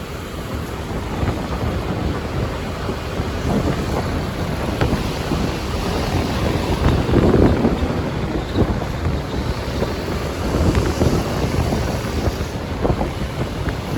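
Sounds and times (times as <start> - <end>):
surrounding traffic: 0.0 - 13.9
wind buffeting microphone: 0.0 - 13.9.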